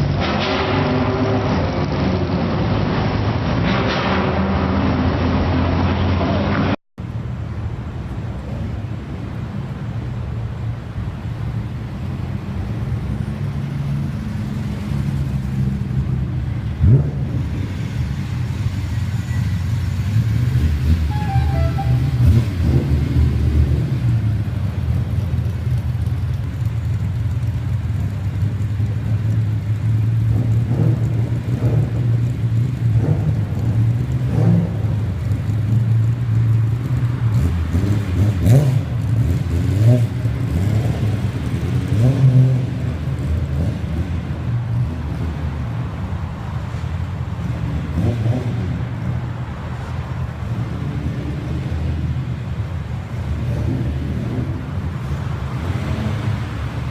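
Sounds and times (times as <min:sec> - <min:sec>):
engine throttle blips: 0:19.2 - 0:23.4
car engine idling: 0:24.5 - 0:31.5.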